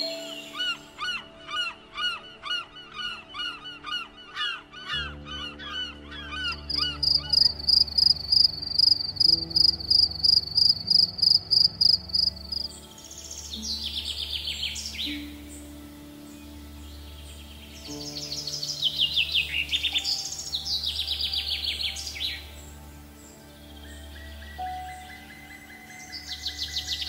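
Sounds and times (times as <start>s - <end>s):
low steady drone: 0.0s - 27.0s.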